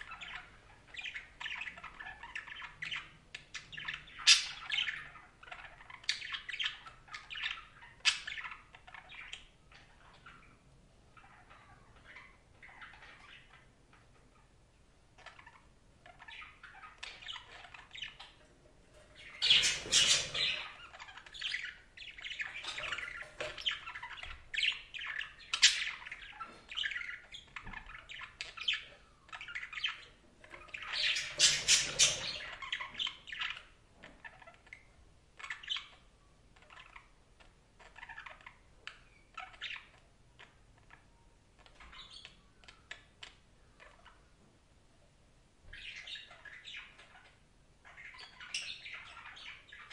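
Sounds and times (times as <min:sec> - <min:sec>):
budgerigar chirps and squawks: 0:00.0 - 0:13.7, 0:19.0 - 0:37.2.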